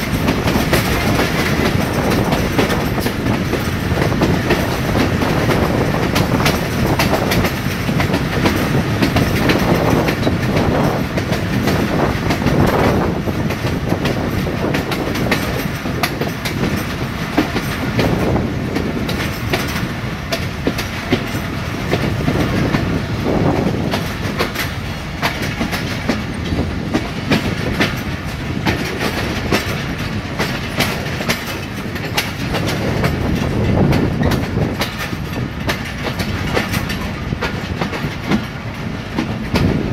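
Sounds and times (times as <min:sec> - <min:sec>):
train rumble: 0:00.0 - 0:39.9
train wheels clicking over rail joints: 0:00.0 - 0:39.9.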